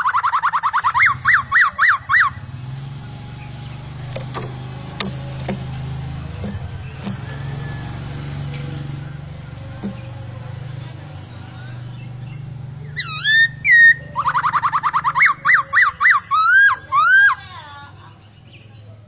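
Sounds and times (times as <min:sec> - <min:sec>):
bird singing whistles and trills: 0:00.0 - 0:03.9, 0:11.1 - 0:17.5.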